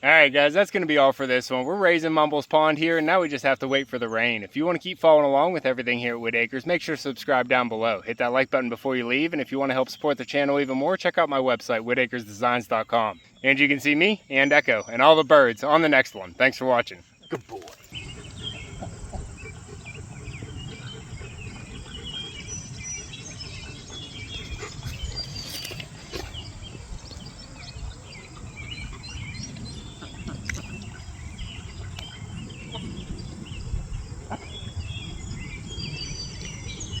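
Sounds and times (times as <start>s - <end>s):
birds chirping: 0.0s - 37.0s
wind on microphone: 17.9s - 37.0s
faint insect drone: 18.0s - 23.0s.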